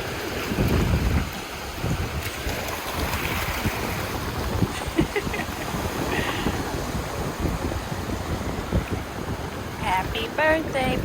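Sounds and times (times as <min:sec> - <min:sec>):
ocean surf rushing: 0:00.0 - 0:11.0
wind buffeting microphone: 0:00.0 - 0:11.0.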